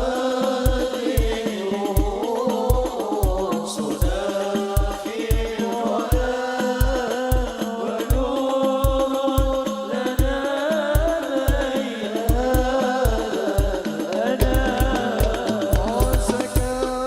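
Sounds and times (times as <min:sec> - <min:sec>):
slapped frame drums: 0:13.2 - 0:17.0
deep bass drum beating: 0:14.4 - 0:17.0
sung melody: 0:14.4 - 0:17.0.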